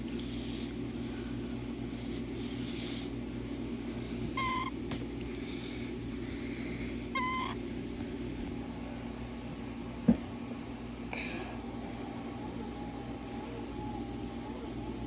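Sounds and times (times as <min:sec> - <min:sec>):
steady low hum: 0:00.0 - 0:15.0
cockatiel chirps: 0:04.4 - 0:04.7, 0:07.2 - 0:07.6.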